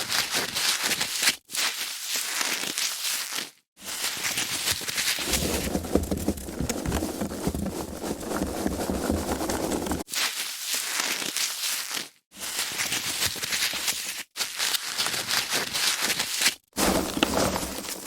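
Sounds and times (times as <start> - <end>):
foam packaging crackling: 4.4 - 10.3
deep rubbing sound: 5.2 - 10.1.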